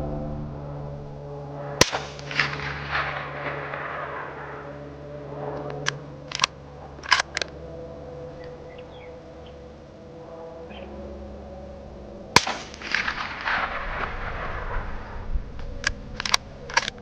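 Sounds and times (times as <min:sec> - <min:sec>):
suppressed rifle shot with echo: 0:01.8 - 0:07.4, 0:12.4 - 0:16.8
rifle bolt clicks: 0:05.6 - 0:07.5, 0:15.8 - 0:17.0.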